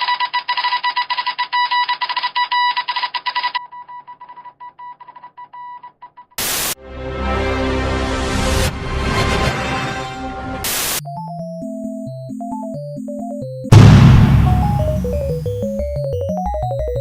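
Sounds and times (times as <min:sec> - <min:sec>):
burst of static: 0:06.4 - 0:06.8, 0:13.7 - 0:15.7
music: 0:06.8 - 0:17.0.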